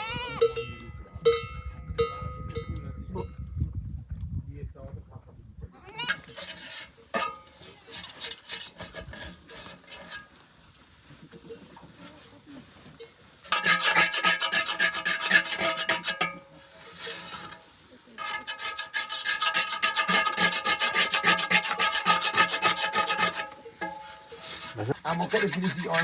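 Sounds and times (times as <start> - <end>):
rhythmic scraping strokes: 6.1 - 10.4, 13.4 - 26.0.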